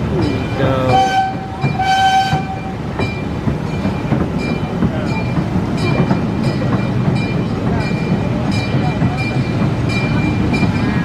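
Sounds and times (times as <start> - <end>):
train rumbling on track: 0.0 - 11.0
train horn: 0.9 - 2.8.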